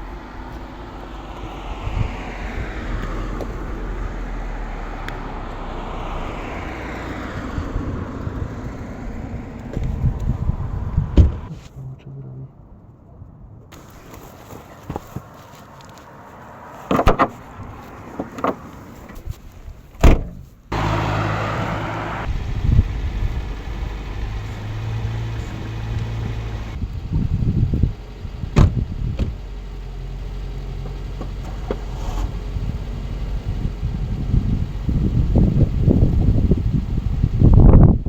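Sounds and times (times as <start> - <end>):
car engine starting and idling: 0.0 - 38.0
car door shutting: 11.0 - 11.7, 16.9 - 17.5, 20.0 - 22.3, 28.6 - 29.4
clunks: 16.8 - 22.0.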